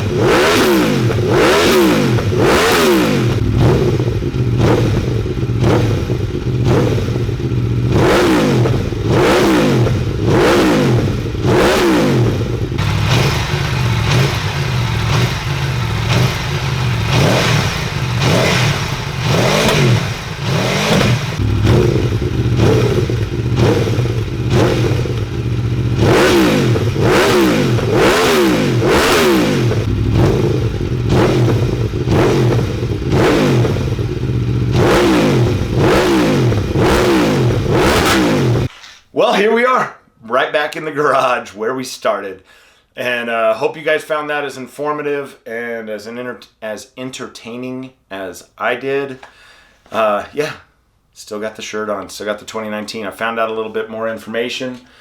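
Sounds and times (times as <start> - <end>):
motorcycle engine revving: 0.0 - 38.7.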